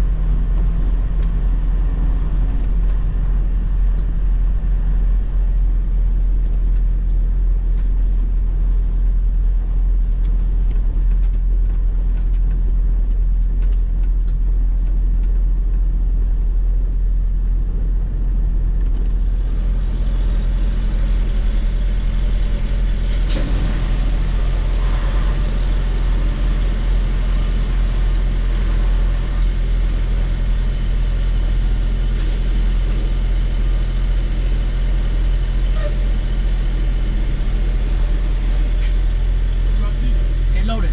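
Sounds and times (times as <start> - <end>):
truck diesel engine running: 17.0 - 40.9.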